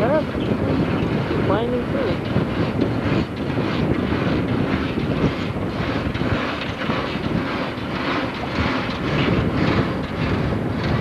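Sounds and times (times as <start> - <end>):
boat engine running: 0.0 - 11.0
water noise: 0.0 - 11.0
wind: 0.0 - 11.0.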